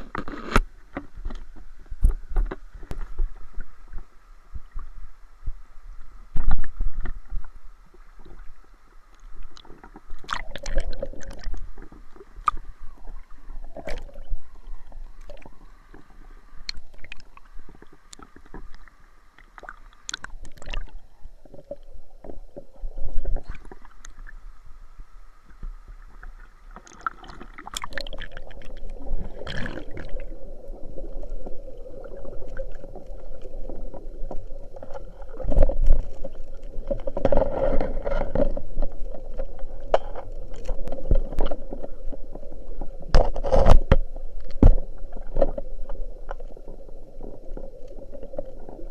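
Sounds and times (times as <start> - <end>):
water sloshing and gurgling: 0.0 - 24.8, 25.4 - 48.9
faint steady hum: 0.0 - 48.9.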